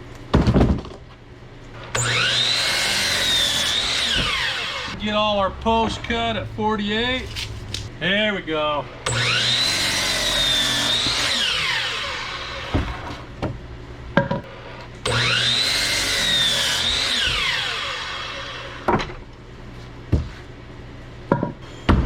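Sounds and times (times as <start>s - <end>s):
electric saw cutting logs: 1.8s - 7.8s, 9.0s - 13.3s, 15.0s - 19.2s.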